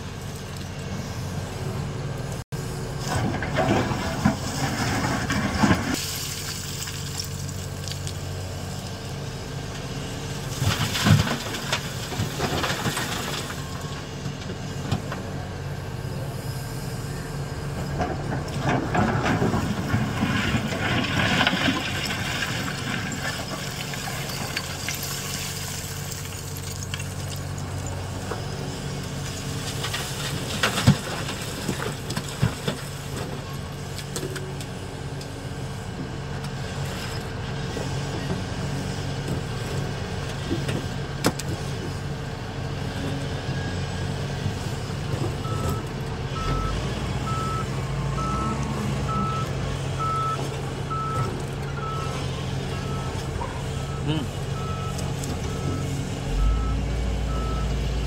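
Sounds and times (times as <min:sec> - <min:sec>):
diesel engines running: 0:00.0 - 0:58.0
rock scraping and clattering: 0:03.1 - 0:06.0, 0:18.6 - 0:27.2
truck reversing alarm beeping: 0:43.4 - 0:58.0.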